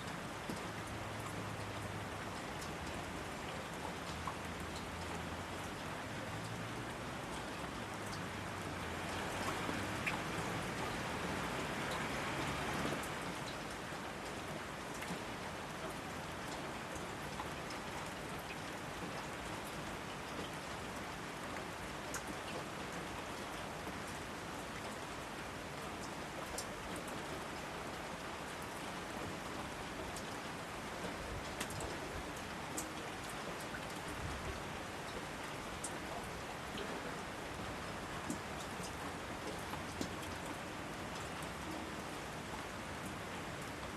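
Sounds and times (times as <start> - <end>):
steady rain hiss: 0.0 - 43.9
raindrops ticking: 0.1 - 15.2, 30.1 - 34.1, 37.6 - 43.9.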